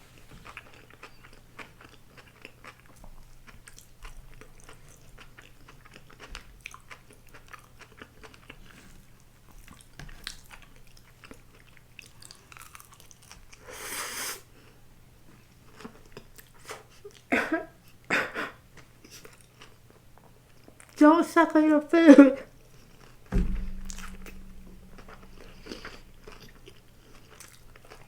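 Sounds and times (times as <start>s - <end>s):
chewing and biting food: 0.4s - 8.6s.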